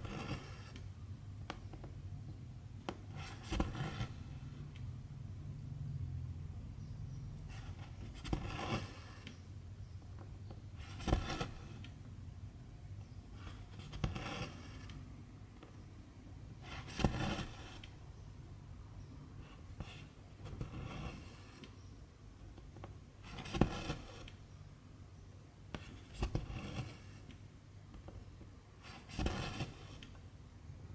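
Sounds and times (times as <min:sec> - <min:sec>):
low steady hum: 0:00.0 - 0:30.9.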